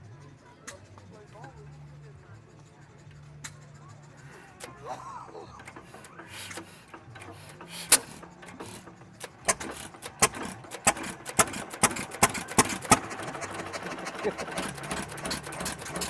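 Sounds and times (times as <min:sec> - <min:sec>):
old engine humming: 0:04.0 - 0:16.0
sharp uneven clicks and knocks: 0:05.6 - 0:16.0.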